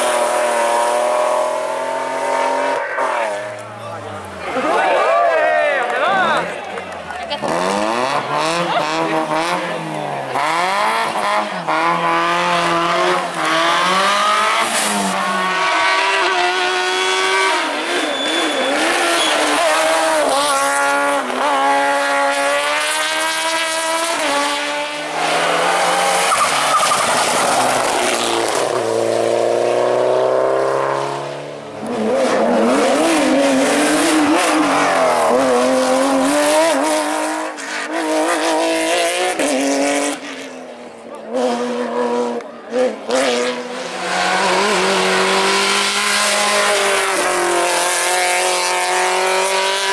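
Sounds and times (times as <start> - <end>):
race car engines revving hard: 0.0 - 49.9
tyre squeal: 17.9 - 19.8, 26.2 - 27.9.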